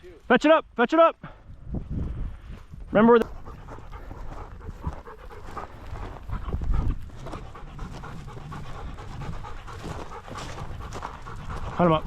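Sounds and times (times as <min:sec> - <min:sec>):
dog panting: 0:03.2 - 0:12.0.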